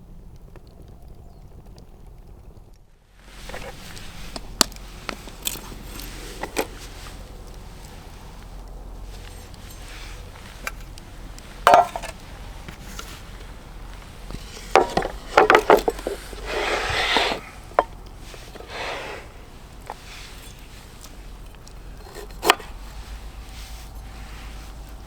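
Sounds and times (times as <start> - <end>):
camp gear rustling: 3.2 - 25.0
camp gear clattering knocks: 11.6 - 13.2, 14.0 - 18.8.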